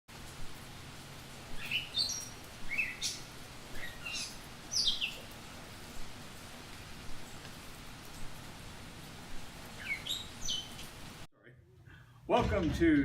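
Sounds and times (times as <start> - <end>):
faint steady hiss: 0.1 - 13.0
songbird chirping: 0.6 - 5.9, 9.6 - 11.2.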